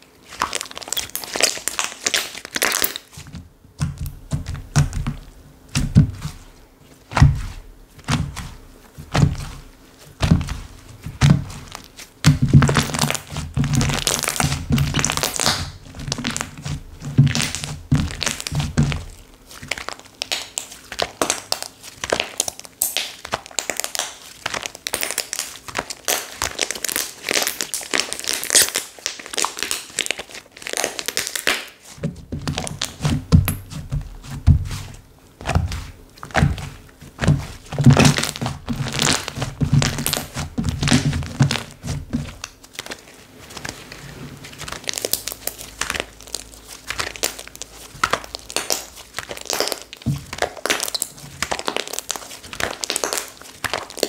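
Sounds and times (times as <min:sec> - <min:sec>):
slime squeezed by hand: 0:00.2 - 0:03.3, 0:07.1 - 0:54.0
soft low thuds: 0:32.0 - 0:42.4.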